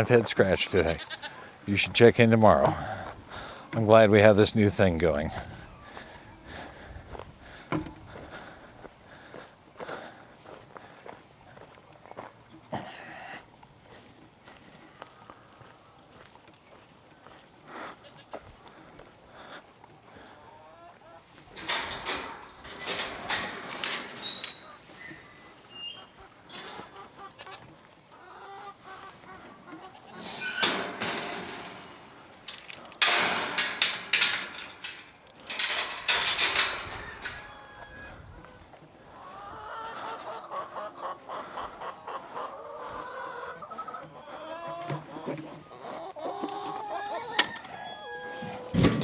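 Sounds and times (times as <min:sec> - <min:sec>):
chickens clucking: 0:25.9 - 0:30.5, 0:37.5 - 0:48.9.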